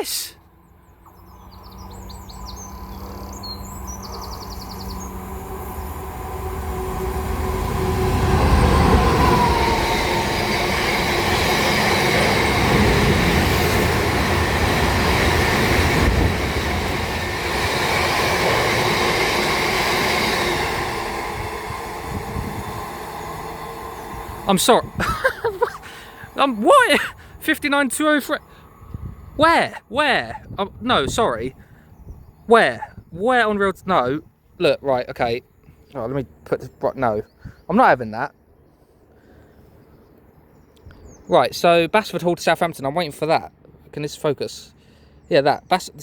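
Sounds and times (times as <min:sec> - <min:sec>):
diesel locomotive passing: 0:00.1 - 0:37.2
wheel and rail noise: 0:00.5 - 0:28.2.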